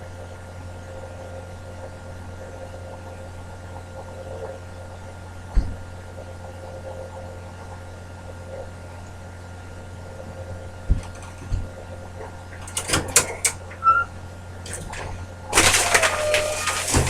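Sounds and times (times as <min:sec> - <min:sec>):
low electrical hum: 0:00.0 - 0:17.0
knocks and clattering rattles: 0:10.9 - 0:14.0, 0:14.6 - 0:17.0
short squeak: 0:13.7 - 0:14.2, 0:15.8 - 0:17.0.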